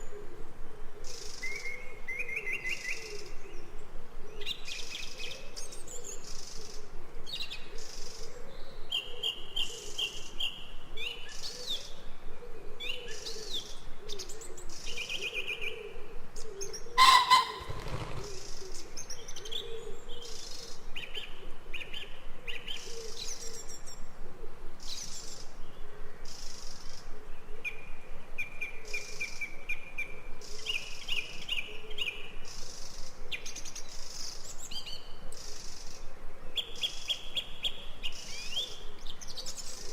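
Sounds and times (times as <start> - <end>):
birds chirping and calling: 16.6 - 18.5.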